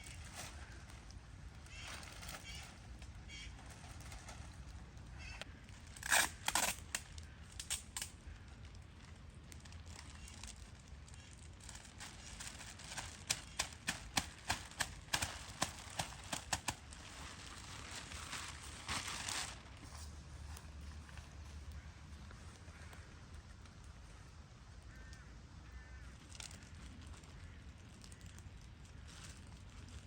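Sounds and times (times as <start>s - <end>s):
plastic sheeting crinkling: 0.0s - 7.7s, 8.5s - 22.6s, 26.2s - 30.0s.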